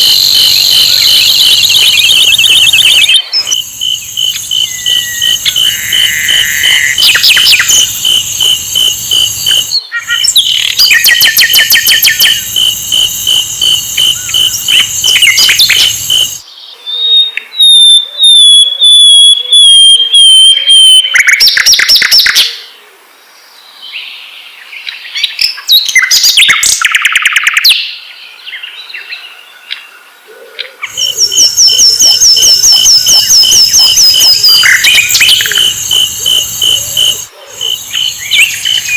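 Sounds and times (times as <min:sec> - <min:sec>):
bird trills and chatter: 0:00.0 - 0:16.4, 0:30.9 - 0:38.9
whistled descending bird notes: 0:00.0 - 0:16.4, 0:30.9 - 0:38.9.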